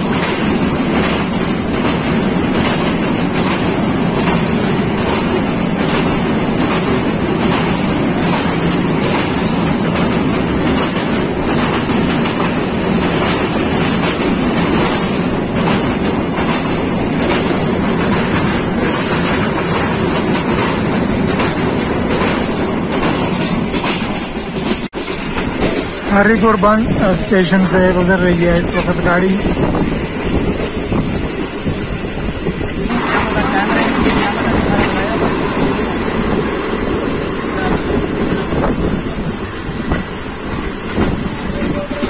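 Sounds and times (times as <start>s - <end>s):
clickety-clack of rail joints: 0.0s - 42.0s
train wheels rumbling on rails: 0.0s - 42.0s.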